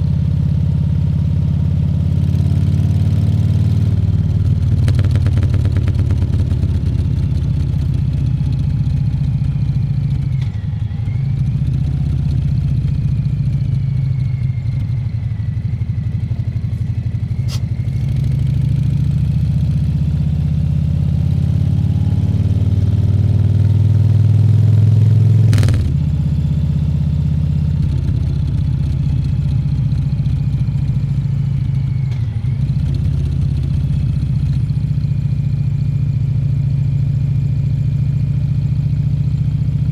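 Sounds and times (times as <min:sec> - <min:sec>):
motorcycle engine running: 0:01.0 - 0:10.2, 0:25.4 - 0:26.9
sharp click: 0:25.5 - 0:26.1.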